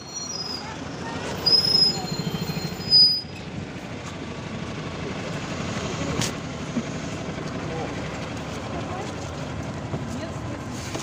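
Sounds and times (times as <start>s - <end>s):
brief high squeals: 0.0s - 3.4s
bus engine rumble from inside: 0.0s - 11.0s.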